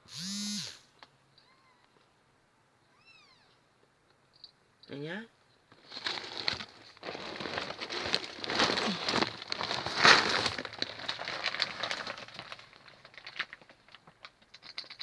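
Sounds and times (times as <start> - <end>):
rustling and crinkling: 5.6 - 15.0.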